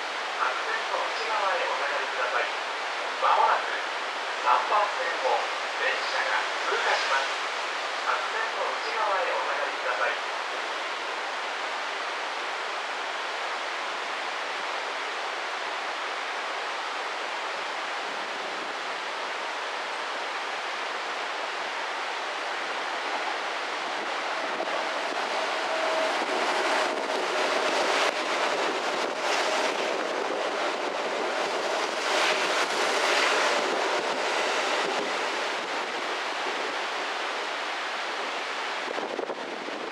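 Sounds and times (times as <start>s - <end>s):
wind and rain on microphone: 0.0s - 39.9s
electric train passing: 21.3s - 37.4s.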